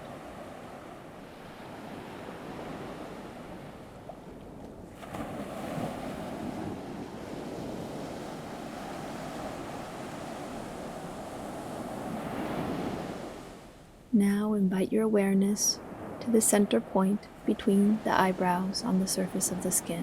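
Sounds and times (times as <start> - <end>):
waves washing on shore: 0.0 - 13.9, 15.4 - 20.0.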